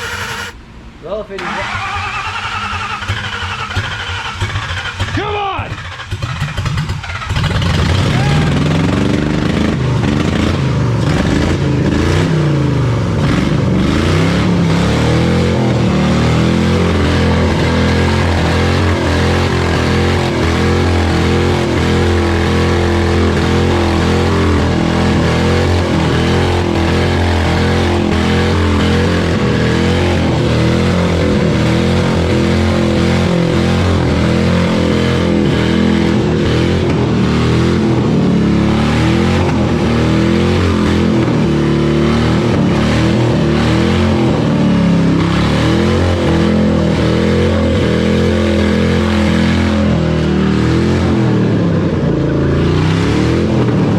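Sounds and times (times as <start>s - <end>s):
car engine running: 0.0s - 0.9s, 15.5s - 47.0s.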